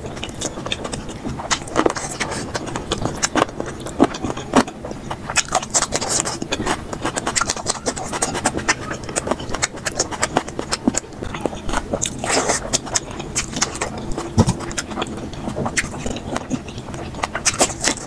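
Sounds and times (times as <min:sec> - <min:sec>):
wet chewing and smacking: 0:00.0 - 0:18.0.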